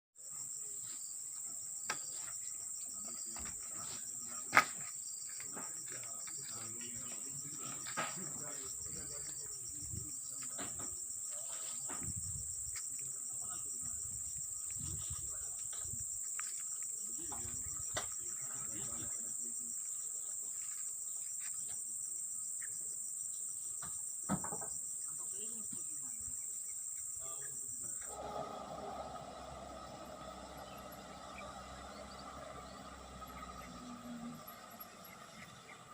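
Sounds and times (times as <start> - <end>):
high-pitched insect chorus: 0.2 - 35.9
knocks: 23.8 - 24.7.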